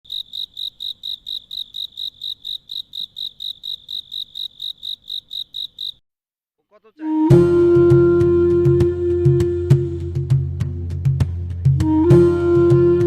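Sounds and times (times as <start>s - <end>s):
cricket chirping: 0.1s - 6.0s.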